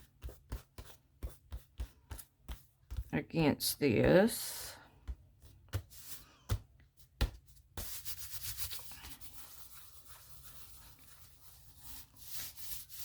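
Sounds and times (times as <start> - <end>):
scratchy rubbing over paper: 5.7 - 6.3, 7.5 - 13.0.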